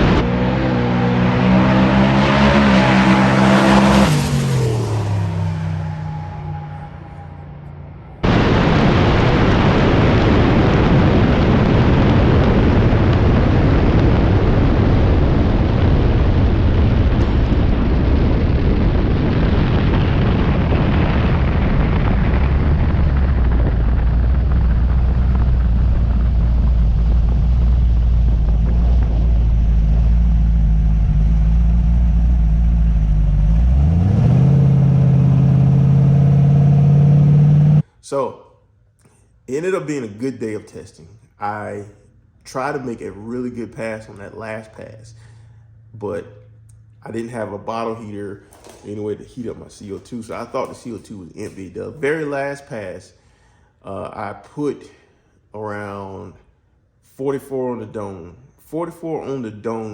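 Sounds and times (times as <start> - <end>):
car engine running: 0.0 - 8.5, 21.8 - 37.8, 44.8 - 48.1
heavy rushing noise: 0.0 - 37.9.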